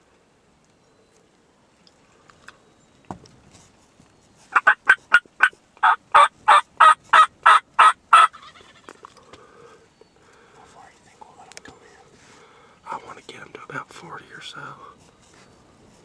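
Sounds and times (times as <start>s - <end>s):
turkey calling: 4.5s - 9.8s.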